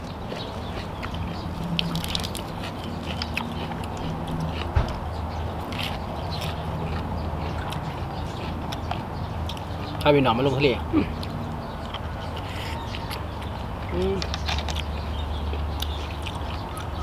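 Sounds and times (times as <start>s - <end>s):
chewing and crunching: 0.0s - 17.0s
dull knock: 4.7s - 5.2s.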